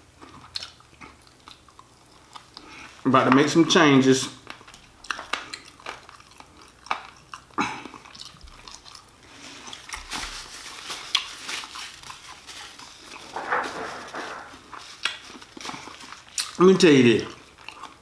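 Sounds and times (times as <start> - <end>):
crunchy chewing: 4.4 - 16.6, 17.2 - 18.0
paper napkin rustling: 9.4 - 16.0.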